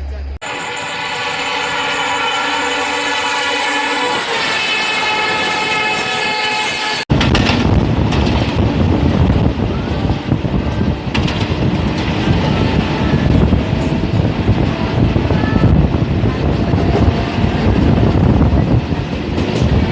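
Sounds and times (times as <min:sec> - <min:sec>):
train rumbling on rails: 0:00.0 - 0:19.9
train horn: 0:00.4 - 0:07.0.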